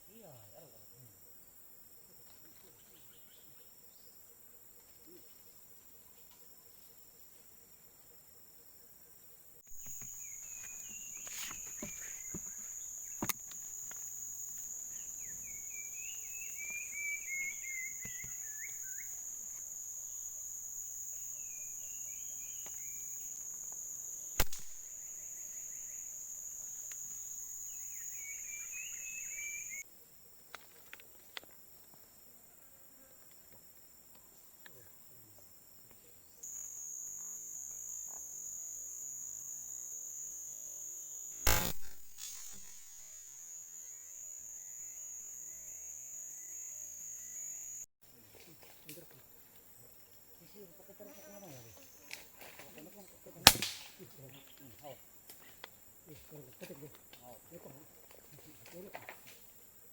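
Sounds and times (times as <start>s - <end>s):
small birds chirping: 9.6s - 20.0s, 21.2s - 23.8s, 24.4s - 29.8s
high-pitched insect drone: 9.6s - 29.9s, 36.4s - 47.9s
sharp click: 24.4s - 24.9s, 41.4s - 43.1s, 53.5s - 53.9s.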